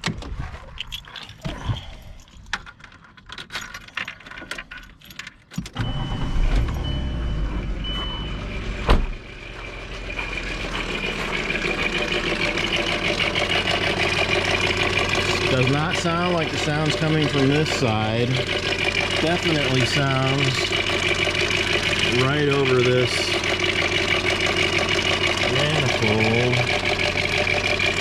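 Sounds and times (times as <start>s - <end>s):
keys jangling: 0.8s - 5.8s
engine starting and idling: 5.6s - 28.0s
high beeping tone: 5.8s - 8.7s
engine rattle at idle: 9.1s - 28.0s.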